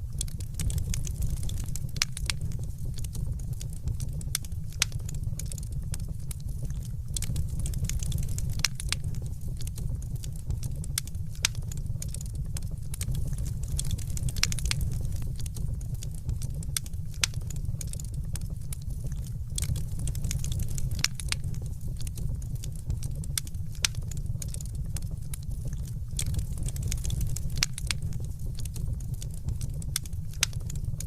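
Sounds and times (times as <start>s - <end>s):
wood fire crackling and popping: 0.0s - 31.0s.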